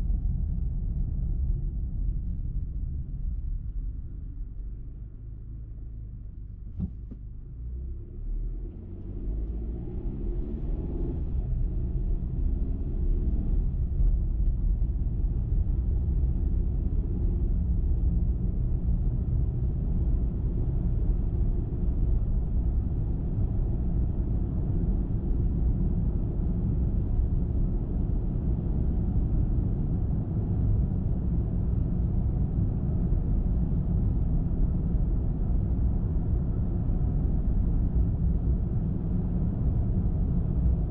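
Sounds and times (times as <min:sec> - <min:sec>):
car engine accelerating: 0:06.8 - 0:13.9.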